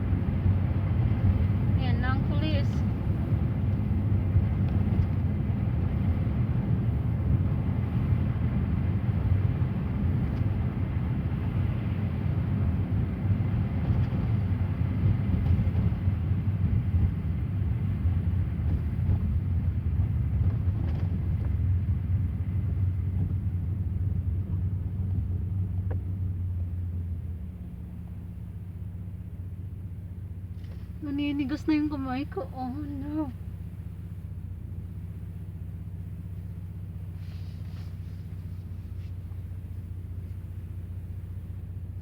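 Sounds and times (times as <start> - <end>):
car engine and road noise: 0.0 - 42.0.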